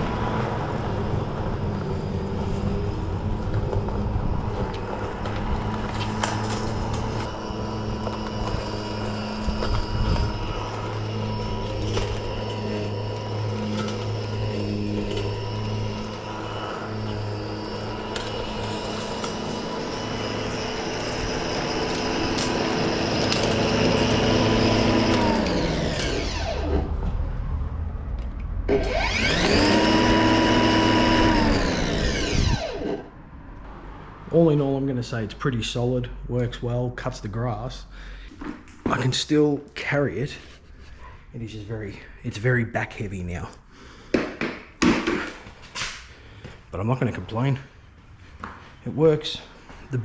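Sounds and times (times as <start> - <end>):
electric lawn mower running: 0.0 - 28.1, 28.7 - 33.5.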